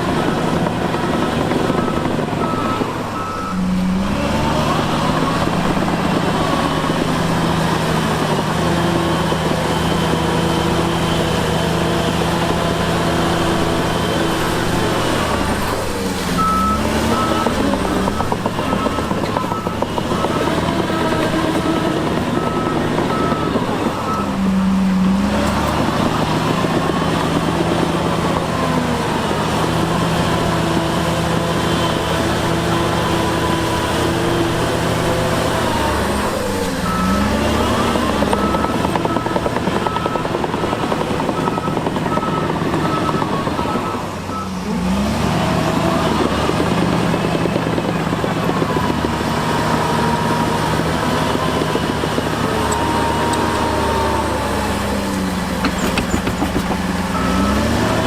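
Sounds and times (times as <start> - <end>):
diesel engine running under load: 0.0 - 58.0
reversing alarm beeping: 0.1 - 27.4, 32.8 - 46.6, 57.1 - 58.0.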